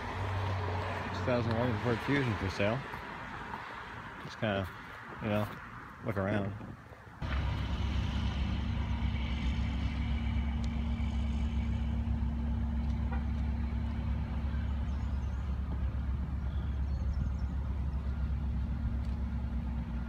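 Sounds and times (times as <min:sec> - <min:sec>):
car engine and road noise: 0:00.0 - 0:20.0
steady hum: 0:07.2 - 0:20.0.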